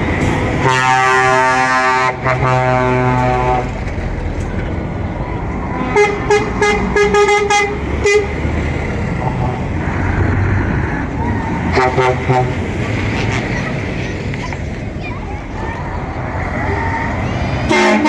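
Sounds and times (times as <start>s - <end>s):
engines rumbling: 0.0s - 18.0s
low truck horn blast: 0.2s - 3.9s, 5.8s - 9.7s, 11.4s - 13.4s, 17.6s - 18.0s.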